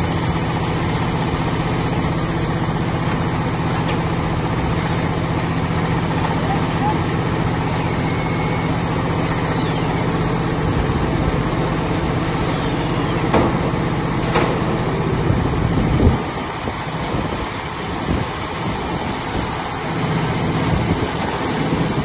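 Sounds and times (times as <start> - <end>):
baler machine motor hum: 0.0 - 22.0
high squeals falling in pitch: 7.8 - 10.3, 12.2 - 13.3.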